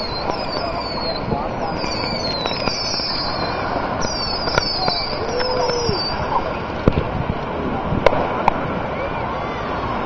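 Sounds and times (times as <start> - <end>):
firework whistles: 0.0 - 7.0, 8.0 - 10.0
firework pops: 0.0 - 8.7
steady noisy background: 0.0 - 10.0.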